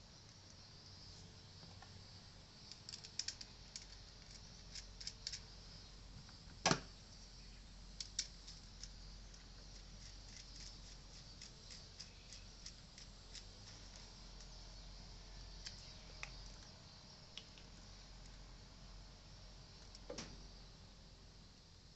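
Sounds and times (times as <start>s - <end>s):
faint steady hum: 0.0s - 21.9s
small hard objects clicking: 2.6s - 5.5s, 8.0s - 14.6s, 15.6s - 16.7s.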